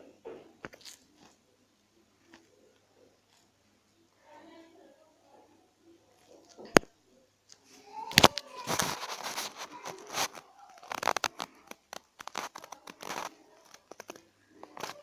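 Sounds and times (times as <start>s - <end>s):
crinkling and tearing: 0.4s - 1.4s, 2.2s - 3.5s, 6.2s - 6.9s, 7.5s - 15.0s.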